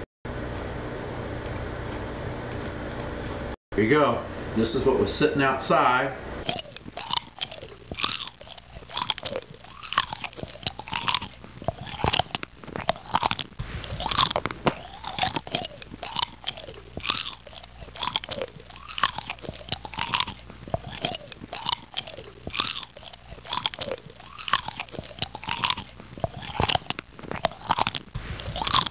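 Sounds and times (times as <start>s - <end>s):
person chewing brittle candy: 6.4s - 28.9s.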